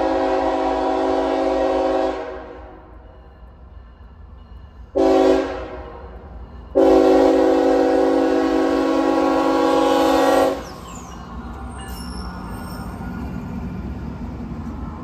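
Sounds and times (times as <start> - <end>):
locomotive air horn blasts: 0.0 - 2.8, 5.0 - 6.0, 6.8 - 10.6
low rumble of train: 0.0 - 15.0.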